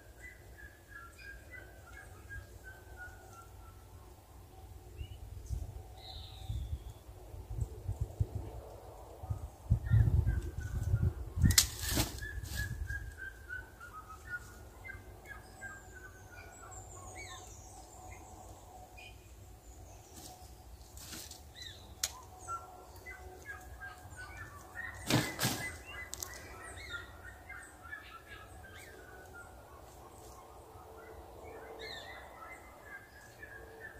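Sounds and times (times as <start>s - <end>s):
birds chirping: 9.6s - 33.9s.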